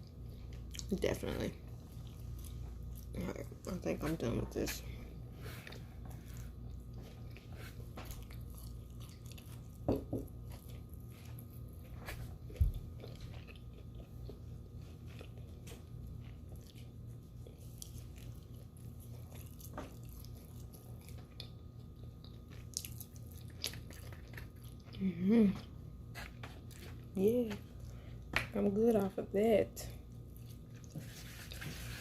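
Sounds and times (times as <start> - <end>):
chewing and biting: 5.6 - 25.0.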